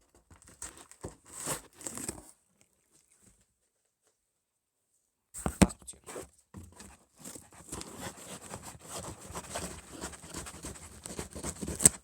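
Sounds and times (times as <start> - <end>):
cardboard rustling and scraping: 0.1 - 2.4, 5.4 - 12.0.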